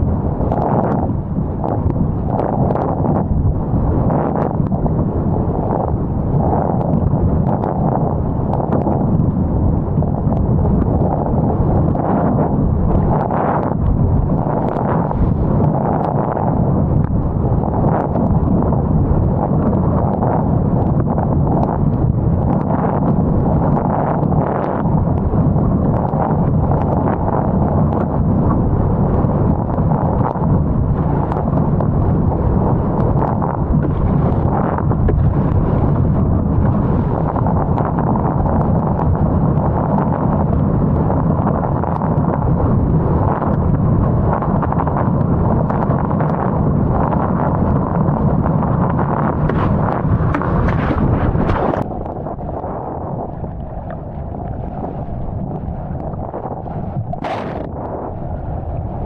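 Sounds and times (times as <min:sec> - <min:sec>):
water noise: 0:00.0 - 0:59.0
wind buffeting microphone: 0:00.0 - 0:59.0.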